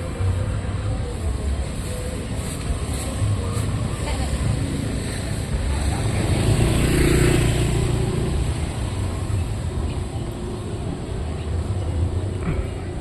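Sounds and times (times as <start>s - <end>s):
traffic engine rumble: 0.0s - 13.0s
vehicle passing close by: 3.9s - 9.9s.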